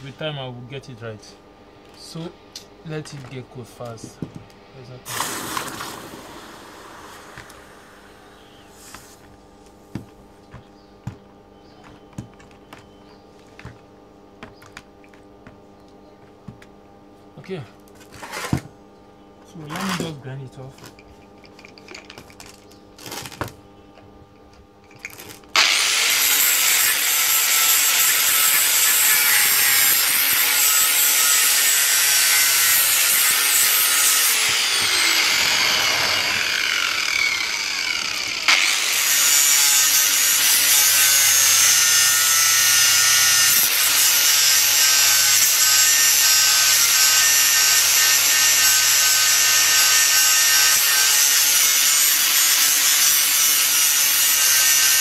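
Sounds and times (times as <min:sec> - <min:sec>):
angle grinder grinding steel pipe: 0:25.0 - 0:55.0.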